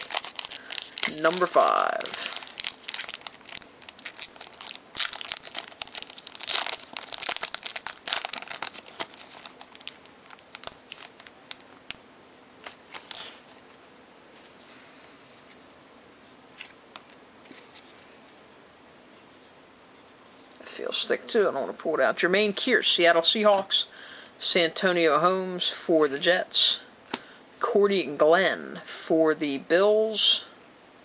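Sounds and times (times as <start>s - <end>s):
foil wrapper tearing and crinkling: 0.0s - 12.0s, 12.6s - 13.5s.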